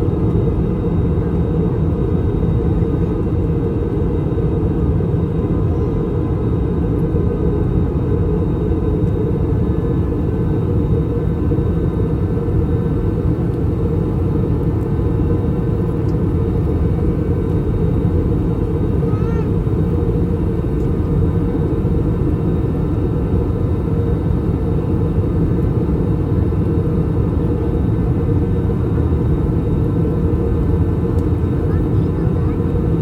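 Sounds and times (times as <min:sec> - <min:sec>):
airplane cabin engine drone: 0:00.0 - 0:33.0.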